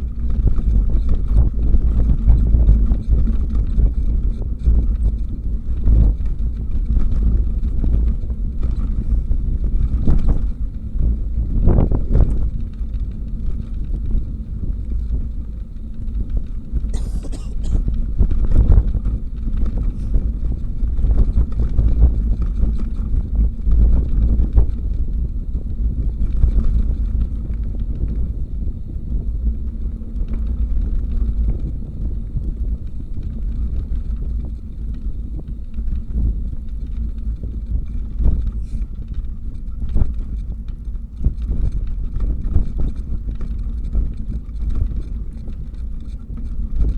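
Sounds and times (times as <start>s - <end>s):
bicycle rattling on road: 18.8s - 46.9s.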